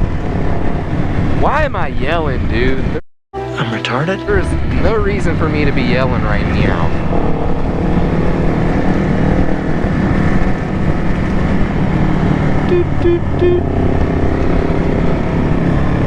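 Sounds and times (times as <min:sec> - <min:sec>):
horn toots: 0:03.4 - 0:07.3, 0:12.6 - 0:16.0.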